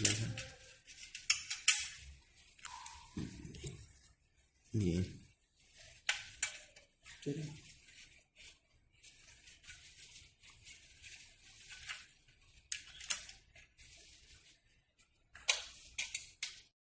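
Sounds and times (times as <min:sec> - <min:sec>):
rustling and scraping handling noise: 0:00.0 - 0:16.8
sharp clicks and snaps: 0:01.2 - 0:01.9.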